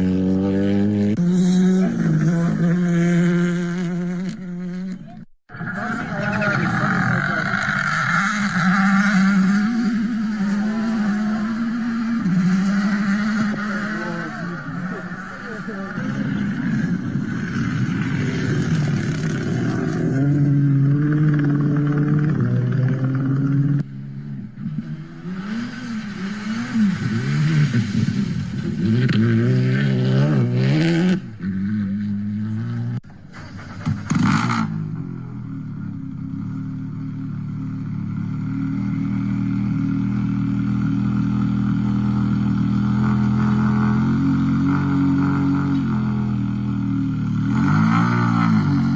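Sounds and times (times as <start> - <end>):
rally car engine at high revs: 0.0 - 48.9.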